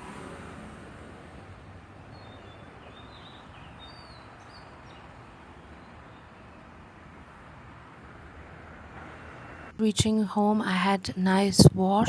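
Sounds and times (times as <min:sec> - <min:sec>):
road traffic hum: 0:00.0 - 0:12.0
bird chirps: 0:02.0 - 0:06.9.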